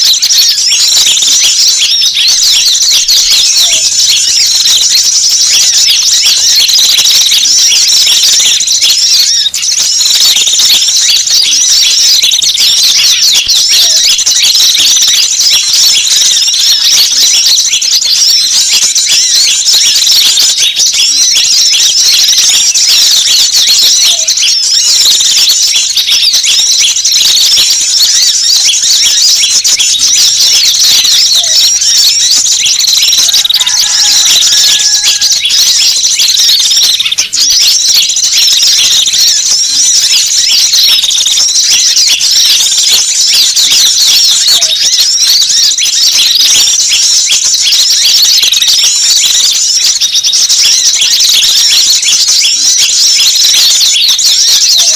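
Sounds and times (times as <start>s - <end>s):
small birds chirping chorus: 0.0s - 54.9s.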